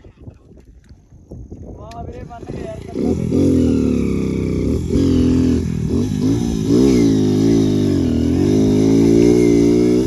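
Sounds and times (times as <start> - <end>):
motorcycle engine revving: 2.3 - 10.0.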